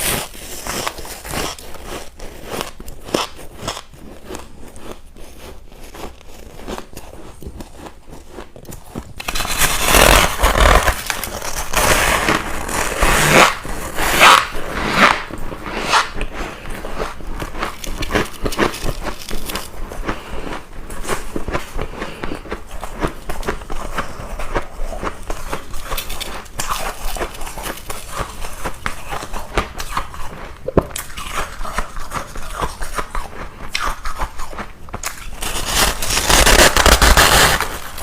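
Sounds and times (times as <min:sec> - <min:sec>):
ice being chewed: 0:00.0 - 0:09.4, 0:16.2 - 0:36.2.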